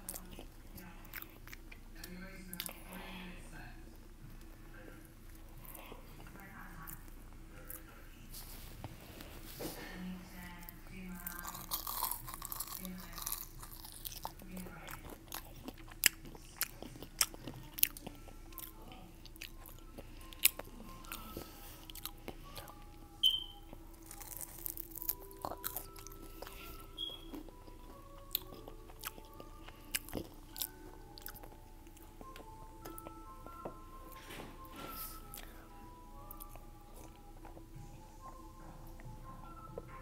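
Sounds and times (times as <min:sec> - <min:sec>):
person crunching food: 0:11.2 - 0:21.2, 0:21.8 - 0:22.8, 0:23.9 - 0:33.2.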